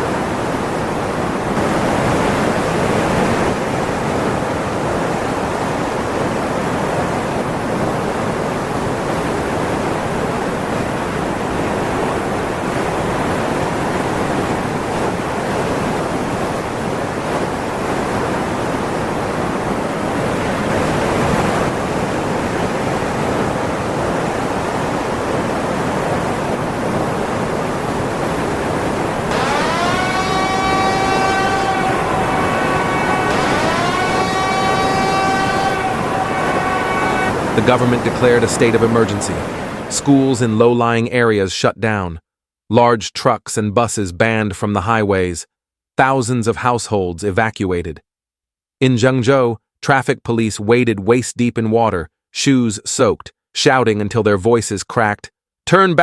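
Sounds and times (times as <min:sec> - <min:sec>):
rushing water: 0:00.0 - 0:40.5.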